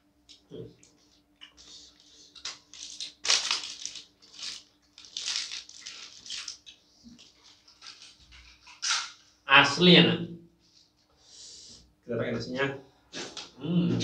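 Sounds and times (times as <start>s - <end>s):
chewing crunchy food: 0.3s - 8.9s.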